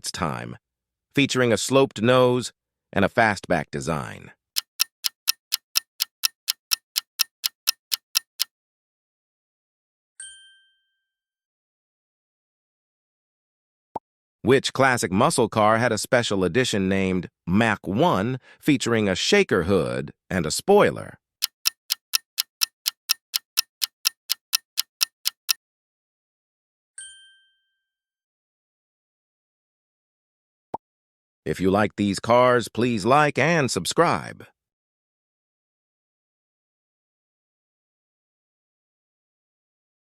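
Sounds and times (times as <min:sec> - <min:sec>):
timer ticking: 0:04.6 - 0:08.5, 0:21.4 - 0:25.6.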